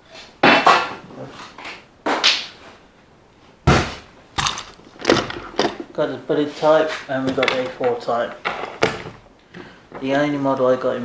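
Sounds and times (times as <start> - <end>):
objects knocking: 3.7 - 6.0, 6.9 - 10.1.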